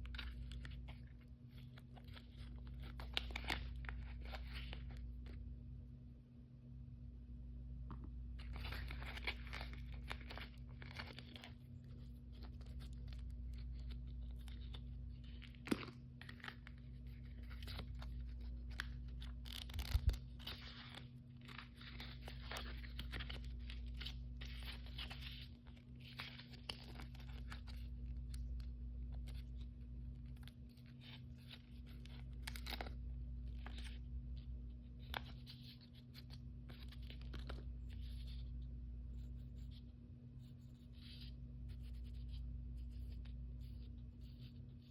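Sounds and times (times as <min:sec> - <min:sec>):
plastic packaging rustling and tearing: 0:00.0 - 0:05.3, 0:08.4 - 0:29.6, 0:30.2 - 0:34.1
steady low hum: 0:00.0 - 0:44.9.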